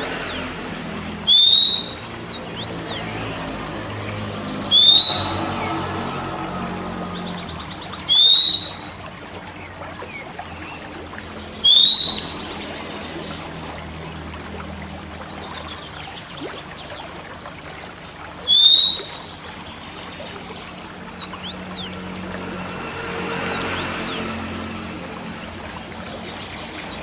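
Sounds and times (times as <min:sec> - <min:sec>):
running water trickling: 0:00.0 - 0:27.0
bird whistling: 0:01.3 - 0:02.4, 0:04.7 - 0:05.8, 0:08.0 - 0:08.9, 0:11.6 - 0:12.5, 0:18.4 - 0:19.3.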